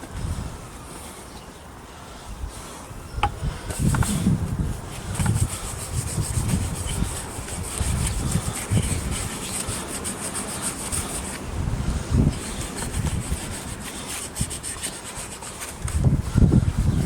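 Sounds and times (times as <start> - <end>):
cloth scrubbing wood: 4.8 - 16.1.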